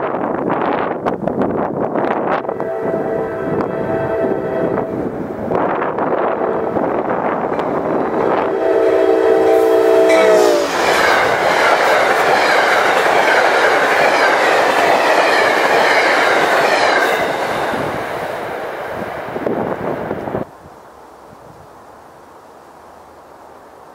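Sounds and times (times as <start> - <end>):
train coaches rumbling past: 0.0 - 21.0
locomotive horn blast: 2.3 - 5.1, 6.0 - 11.4.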